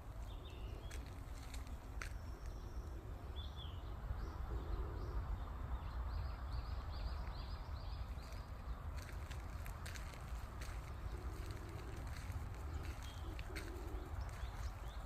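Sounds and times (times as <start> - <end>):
small bird chirping: 6.3 - 15.0.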